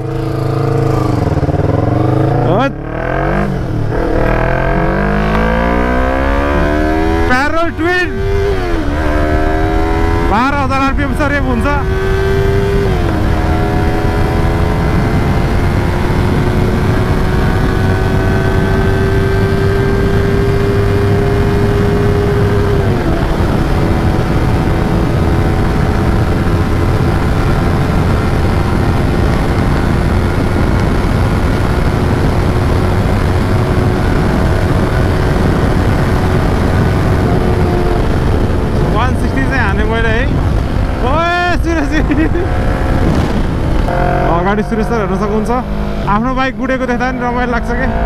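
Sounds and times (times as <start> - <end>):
motorcycle engine running hard: 0.0 - 48.0.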